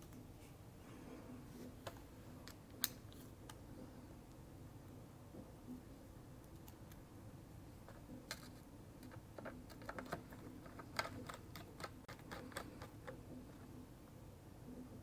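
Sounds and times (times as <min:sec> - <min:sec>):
small hard parts clicking: 0:07.9 - 0:13.2.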